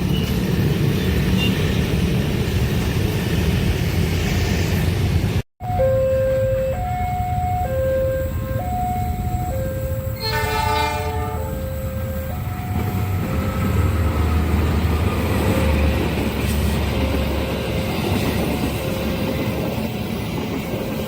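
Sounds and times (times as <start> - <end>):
passing train rumble: 0.0 - 21.0
two-tone crossing alarm: 5.6 - 21.0
train horn blast: 10.1 - 13.1.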